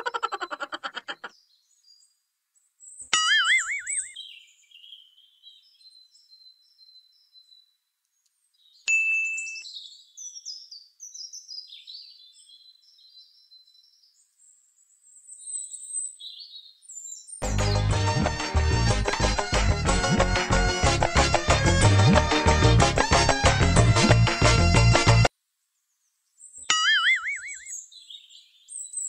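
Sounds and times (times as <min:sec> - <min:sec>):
small birds chirping: 0:00.0 - 0:18.1, 0:25.8 - 0:29.0
short bright ding: 0:08.9 - 0:09.6.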